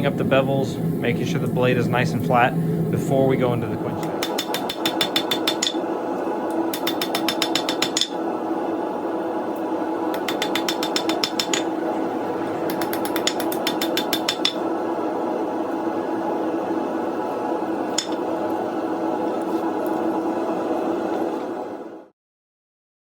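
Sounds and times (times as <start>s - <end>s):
steady hum: 0.0s - 22.1s
hammer striking steel on anvil: 4.0s - 5.8s, 6.7s - 8.2s, 10.1s - 11.8s, 12.7s - 14.6s, 17.9s - 18.2s.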